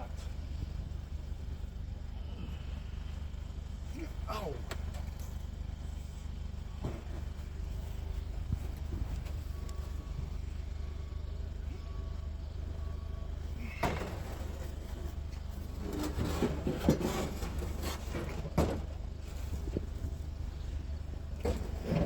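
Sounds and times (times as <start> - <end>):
vehicle engine idling: 0.0 - 22.0
knocks and clatter of items: 15.7 - 19.9.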